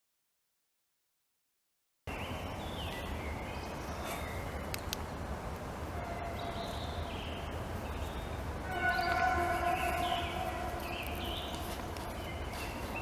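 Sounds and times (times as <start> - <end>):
bird chirps: 6.4 - 13.0.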